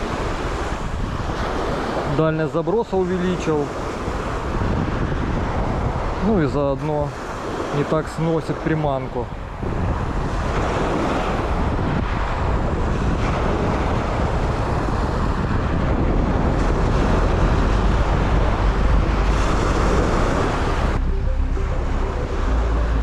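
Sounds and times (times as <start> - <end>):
wind buffeting microphone: 0.0 - 2.2, 3.6 - 7.8, 9.2 - 21.3
surf washing onto shore: 0.0 - 21.0
background music: 16.5 - 23.0.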